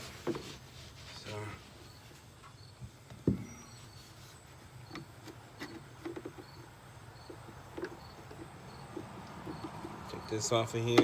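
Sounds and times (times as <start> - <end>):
clicks and knocks of handling: 4.9 - 10.1.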